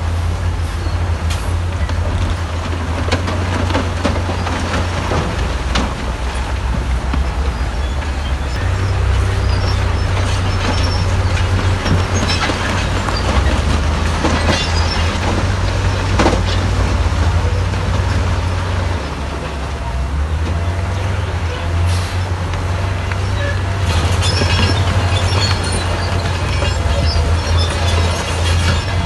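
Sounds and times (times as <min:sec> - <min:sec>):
bulldozer engine running: 0:00.0 - 0:29.0
metallic clanks and rattles: 0:01.3 - 0:18.4, 0:23.6 - 0:29.0.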